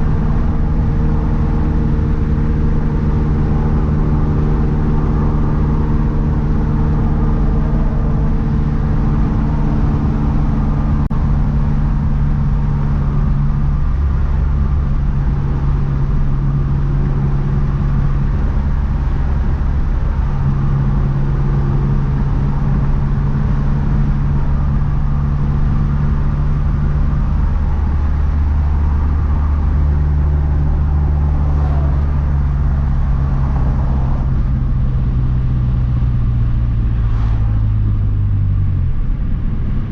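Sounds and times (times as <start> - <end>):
car engine cruising: 0.0 - 39.9
road noise: 0.0 - 39.9.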